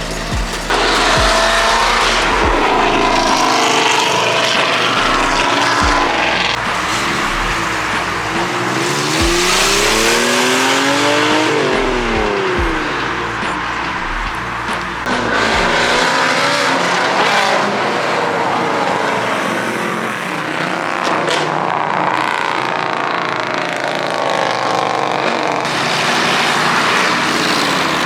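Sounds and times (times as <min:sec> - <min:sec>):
loud rushing noise: 0:00.0 - 0:21.6
car engine revving: 0:00.0 - 0:28.0.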